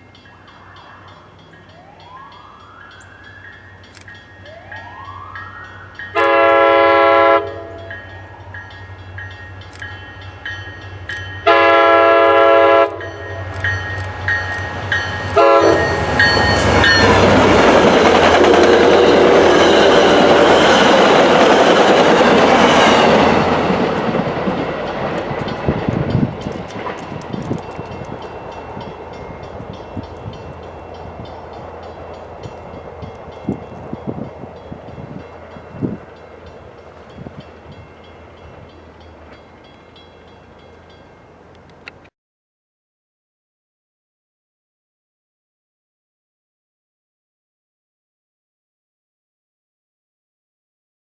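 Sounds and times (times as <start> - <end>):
train passing: 0.0 - 42.1
train horn blasts: 6.1 - 8.0, 11.4 - 13.5, 15.2 - 17.3
wheels clattering on rails: 13.2 - 39.8.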